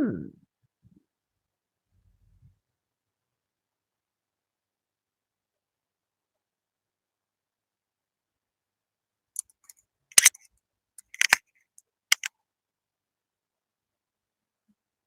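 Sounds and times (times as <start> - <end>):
metal tools clicking and rattling: 10.2 - 10.4, 11.0 - 11.4.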